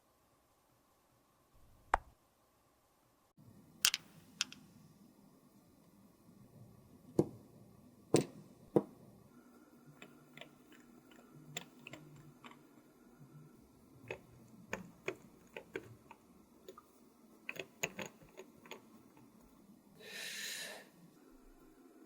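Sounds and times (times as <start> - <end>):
makeup containers clicking: 10.0 - 12.6, 14.1 - 16.8, 17.4 - 19.3.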